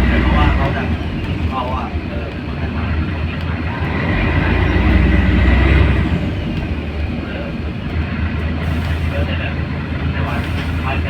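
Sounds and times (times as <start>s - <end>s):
diesel bus engine rumbling: 0.0s - 11.0s.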